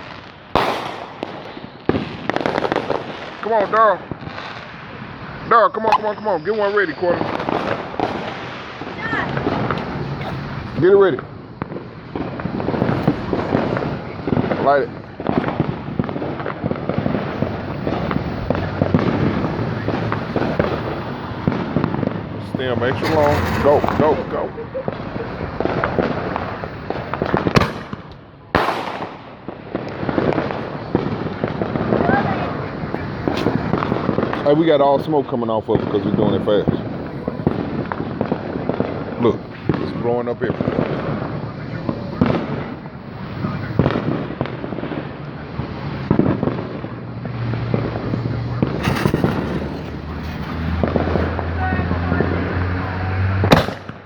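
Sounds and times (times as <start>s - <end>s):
firework bangs: 0.0s - 54.0s
firework crackle of pops: 0.0s - 54.0s.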